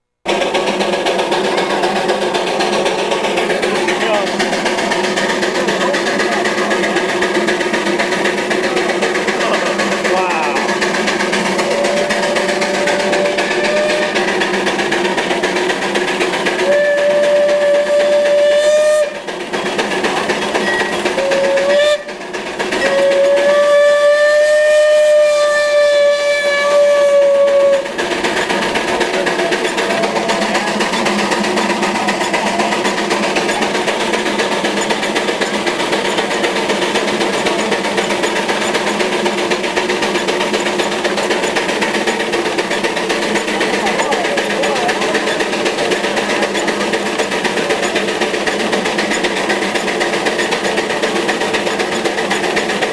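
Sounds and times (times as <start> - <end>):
machinery noise: 0.3 - 52.9
steam whistle blasts: 9.6 - 15.0, 16.5 - 19.3, 20.6 - 22.2, 22.8 - 28.1.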